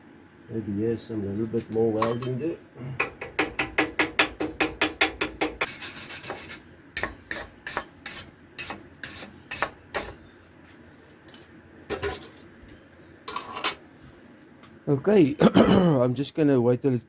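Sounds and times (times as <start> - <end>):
hand scrubbing on metal: 5.6 - 6.6.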